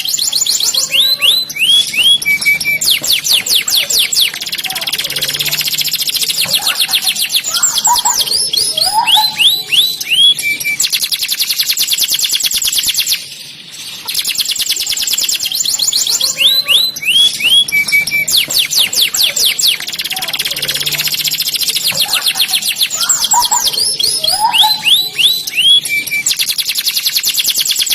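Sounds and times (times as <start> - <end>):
canary singing trills: 0.0 - 27.9.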